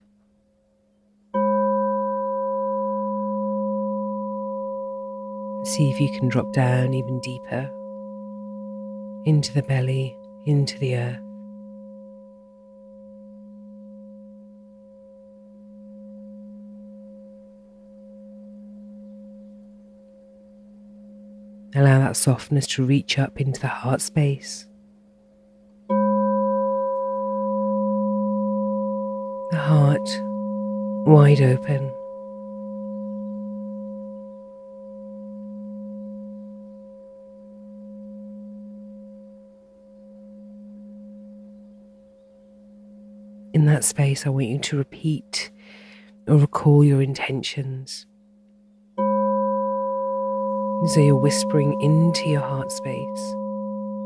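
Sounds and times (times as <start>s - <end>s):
singing bowl humming: 0.9s - 22.0s, 24.6s - 43.6s, 45.5s - 46.3s, 48.0s - 54.0s.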